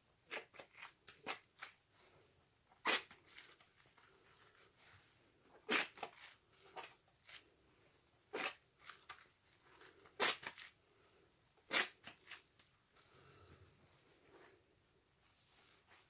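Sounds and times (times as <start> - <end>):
wet sponge squelching: 2.8 - 10.8.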